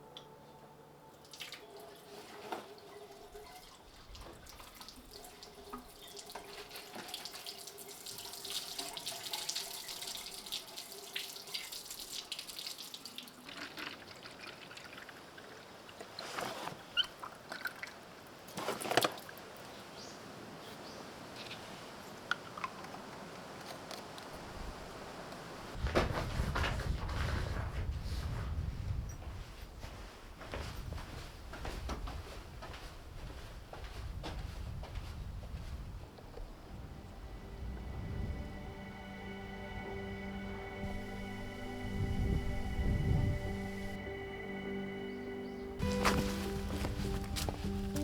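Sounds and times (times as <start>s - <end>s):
water running and splashing: 1.3s - 16.4s, 45.8s - 48.0s.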